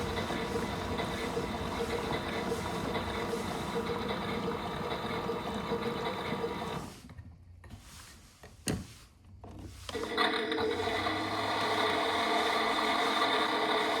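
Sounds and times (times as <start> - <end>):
washing machine running: 0.0 - 7.0, 9.7 - 14.0.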